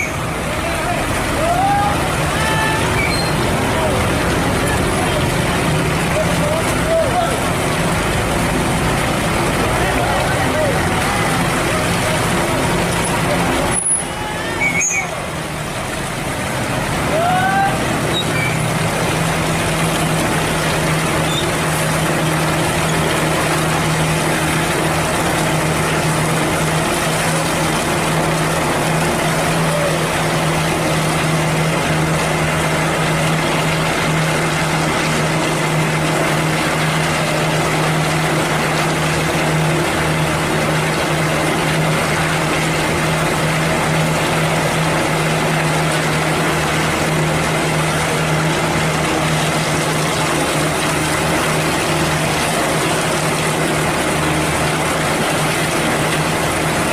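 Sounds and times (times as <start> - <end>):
diesel truck engine humming: 0.0 - 56.9.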